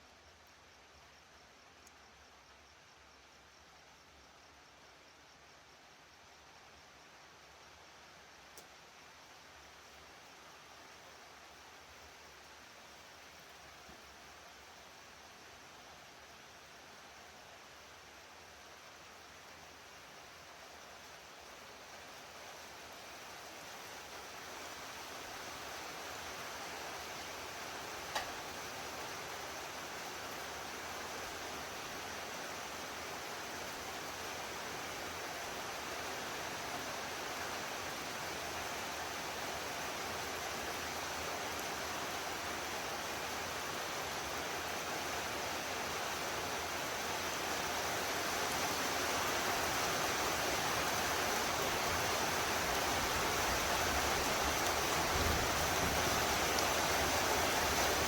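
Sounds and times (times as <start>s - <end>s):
heavy rain pouring: 21.4s - 58.0s.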